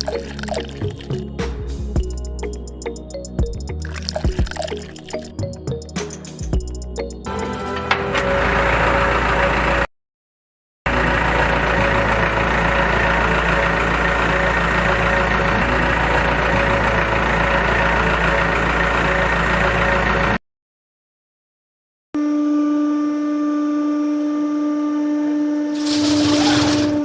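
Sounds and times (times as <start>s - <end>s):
small motor whining: 25.6s - 27.0s.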